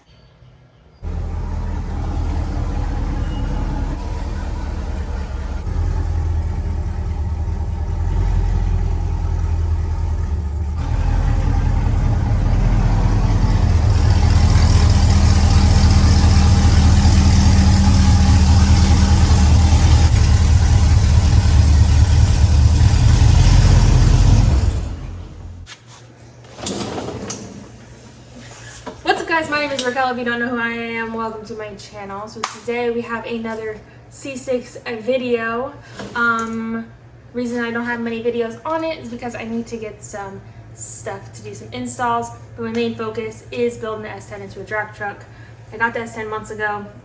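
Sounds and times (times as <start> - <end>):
car engine running: 1.0 - 25.7.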